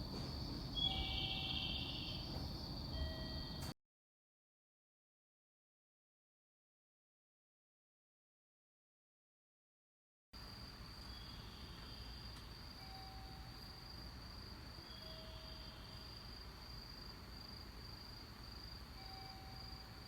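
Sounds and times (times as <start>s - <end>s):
cricket-like insect trill: 0.0s - 3.7s, 10.4s - 20.0s.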